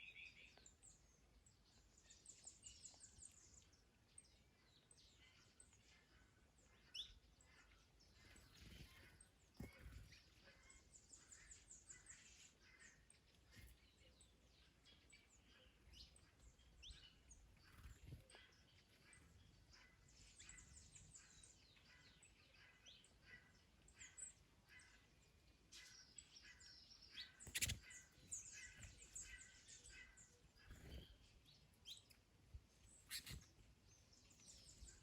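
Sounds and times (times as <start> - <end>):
birds chirping and whistling: 27.1 - 32.1, 32.9 - 33.6
rapid high bird trill: 27.4 - 29.6.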